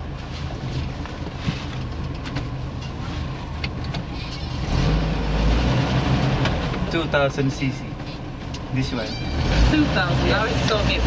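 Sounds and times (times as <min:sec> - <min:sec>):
car engine running: 0:05.5 - 0:11.0.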